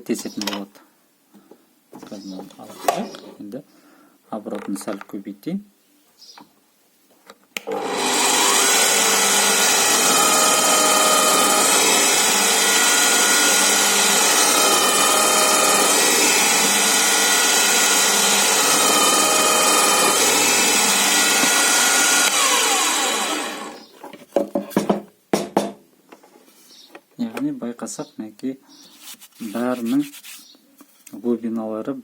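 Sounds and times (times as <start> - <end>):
drill press running: 7.7 - 23.8.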